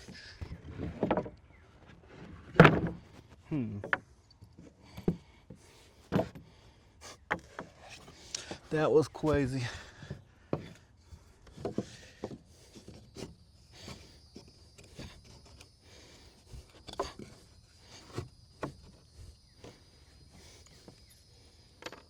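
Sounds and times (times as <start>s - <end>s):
wood knocking on wooden deck: 10.0s - 10.8s.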